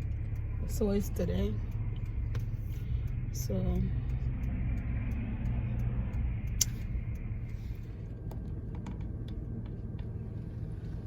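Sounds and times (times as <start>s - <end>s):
car cabin rumble: 0.0s - 11.0s
sharp click: 6.5s - 6.9s.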